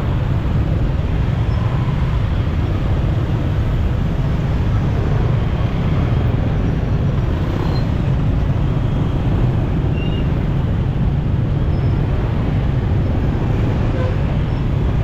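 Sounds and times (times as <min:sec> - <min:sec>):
surrounding traffic noise: 0:00.0 - 0:15.0.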